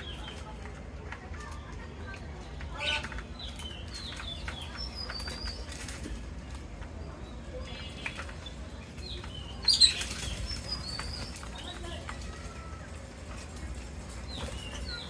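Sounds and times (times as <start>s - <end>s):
parrots chirping: 2.7s - 6.0s, 7.6s - 12.0s
parrots flapping wings: 9.2s - 15.0s.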